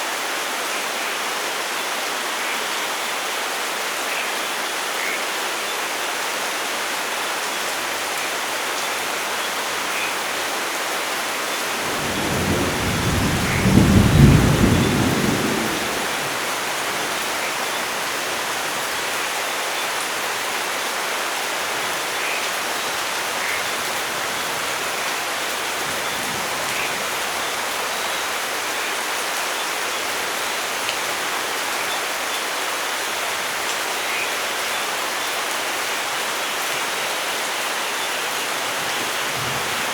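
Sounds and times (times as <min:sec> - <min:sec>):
steady rain: 0:00.0 - 0:39.9
thunder rolling: 0:11.8 - 0:17.2.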